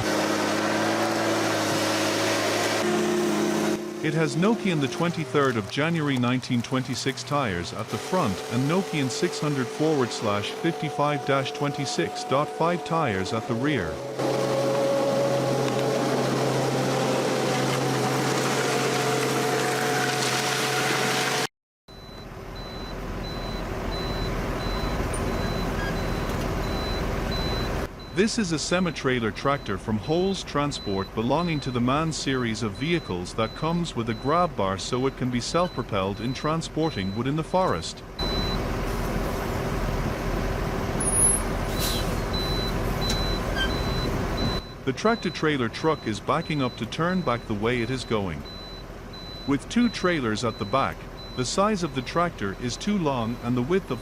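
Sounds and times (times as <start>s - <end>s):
truck diesel engine rumbling: 0.0s - 20.0s, 21.9s - 54.0s
machine engine humming: 2.4s - 20.0s
reversing alarm beeping: 7.4s - 14.2s, 21.9s - 38.6s, 41.0s - 54.0s.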